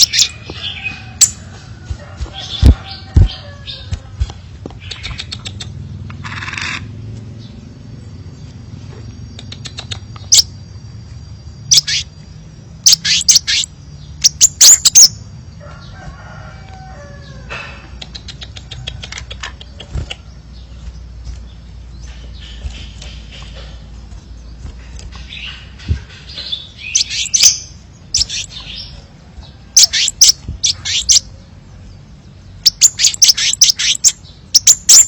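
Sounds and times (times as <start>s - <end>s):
bird calling with ticking notes: 0.0s - 1.4s, 2.6s - 6.9s, 9.0s - 10.7s, 11.6s - 15.3s, 18.0s - 29.1s, 29.7s - 31.4s, 32.1s - 35.0s.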